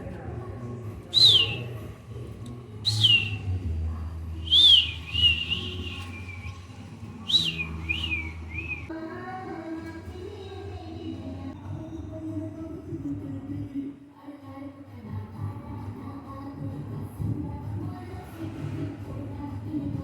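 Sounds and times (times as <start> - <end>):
budgerigar whistled calls: 4.5 - 6.5, 7.3 - 8.9.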